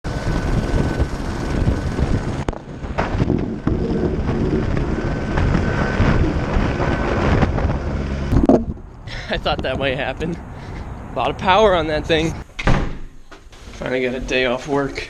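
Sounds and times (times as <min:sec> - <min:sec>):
helicopter high whine: 0:00.0 - 0:08.5
helicopter rotor wind rumble: 0:00.0 - 0:12.4.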